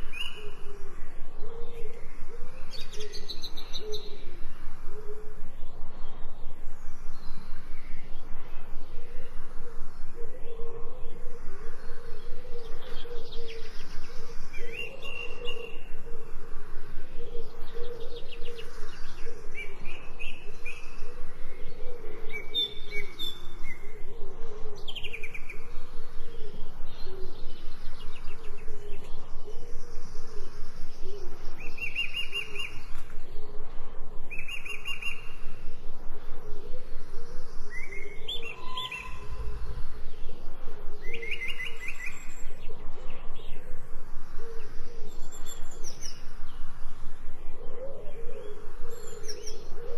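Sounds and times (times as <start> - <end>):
birds chirping: 34.1 - 49.9.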